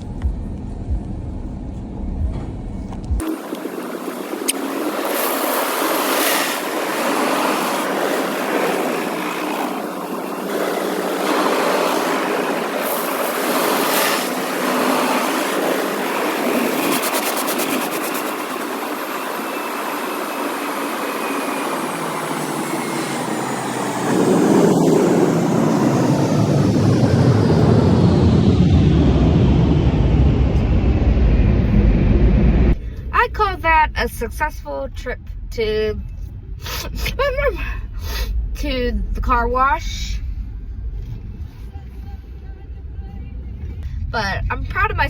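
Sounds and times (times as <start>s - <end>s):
car wash water spray and machinery: 0.0s - 22.3s.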